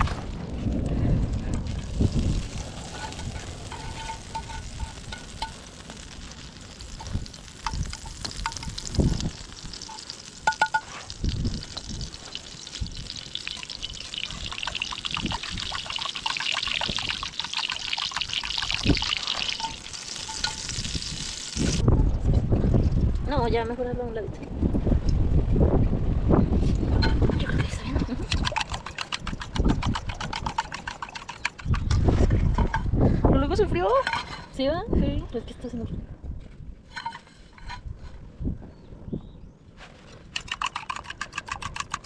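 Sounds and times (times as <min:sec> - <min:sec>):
food sizzling in a pan: 0:01.9 - 0:21.8.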